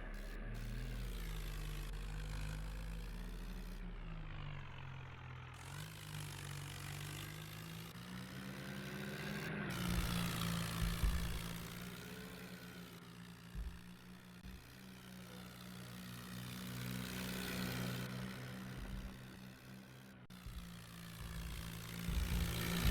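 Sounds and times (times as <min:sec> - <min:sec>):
tractor diesel engine revving: 0:00.0 - 0:22.9
sharp thumps: 0:09.8 - 0:11.8, 0:13.4 - 0:14.7, 0:18.6 - 0:19.4, 0:20.3 - 0:22.9.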